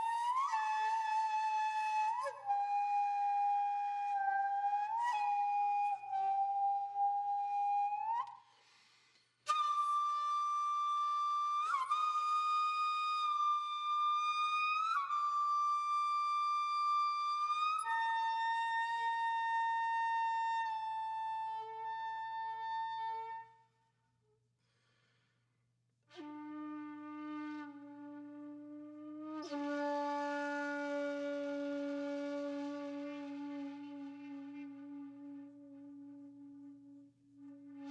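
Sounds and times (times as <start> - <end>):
solo wind instrument long notes: 0.0 - 8.8, 26.1 - 37.9.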